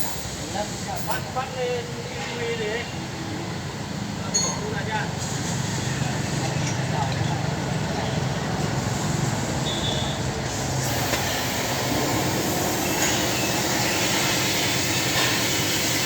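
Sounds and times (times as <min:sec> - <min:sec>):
hiss: 0:08.7 - 0:16.0.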